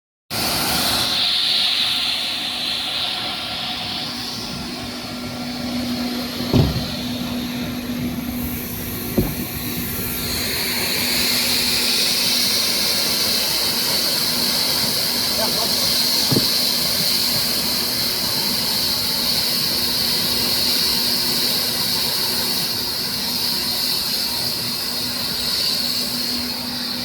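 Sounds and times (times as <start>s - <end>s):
water spray hissing: 0.6s - 27.0s
motor hum: 5.2s - 11.8s, 15.9s - 16.9s
knocks: 6.4s - 7.2s, 9.1s - 9.8s, 16.3s - 16.6s.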